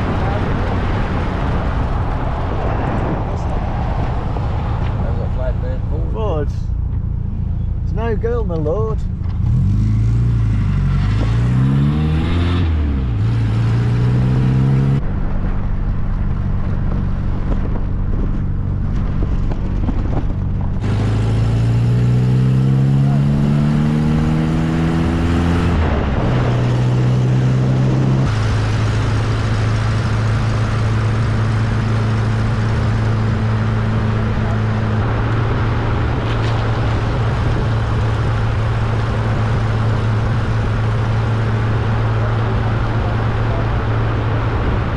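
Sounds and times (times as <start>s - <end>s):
wind noise: 0.0s - 8.2s, 8.8s - 44.9s
car engine accelerating through gears: 9.2s - 15.2s, 16.3s - 44.9s.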